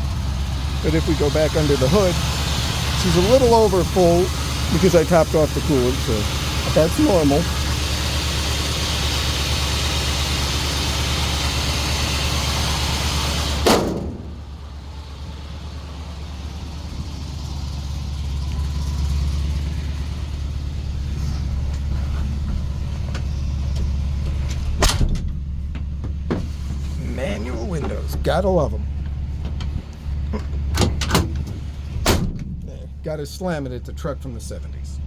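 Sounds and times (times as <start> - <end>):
car engine idling: 0.0 - 35.0
sharp thump: 13.6 - 14.4.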